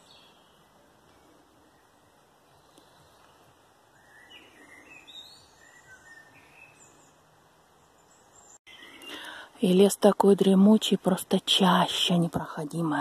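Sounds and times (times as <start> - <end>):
songbirds chirping and whistling: 0.0 - 9.4
quiet hiss: 0.0 - 13.0.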